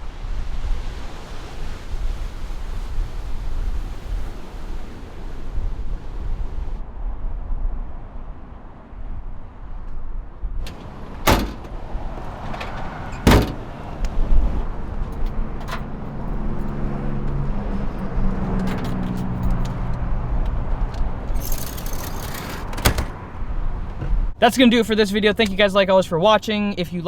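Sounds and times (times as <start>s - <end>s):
low wind rumble: 0.0s - 25.7s
motor vehicle running: 10.6s - 24.4s.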